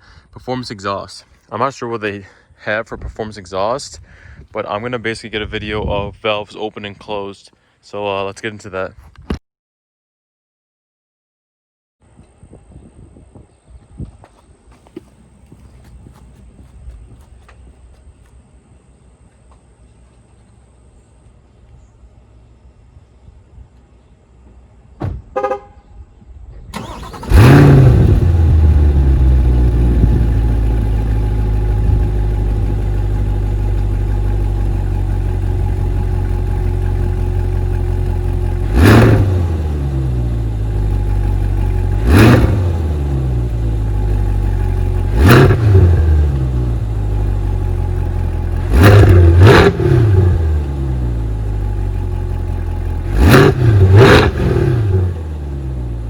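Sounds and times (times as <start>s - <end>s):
car engine starting and idling: 26.7s - 56.0s
engine revving: 26.8s - 56.0s.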